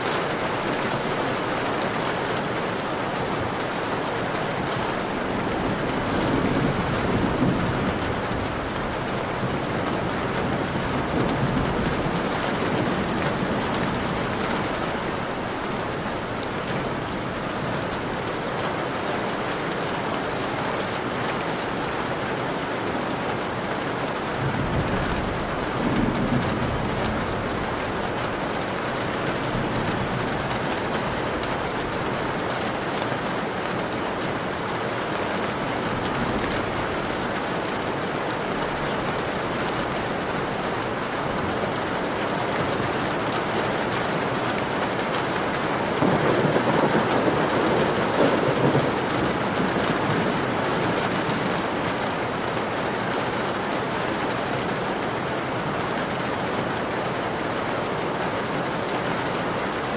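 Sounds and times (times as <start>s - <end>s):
heavy rain on a window: 0.0s - 59.9s
thunder rumbling: 2.8s - 18.3s, 24.4s - 32.1s, 45.4s - 51.8s.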